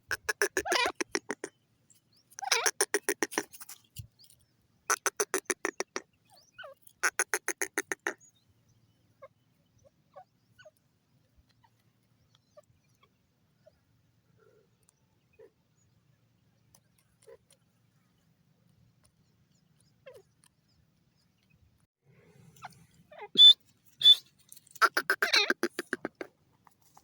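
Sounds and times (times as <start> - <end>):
faint bird chirps: 0.6 - 24.4
francolin calling shrill notes: 23.4 - 24.3.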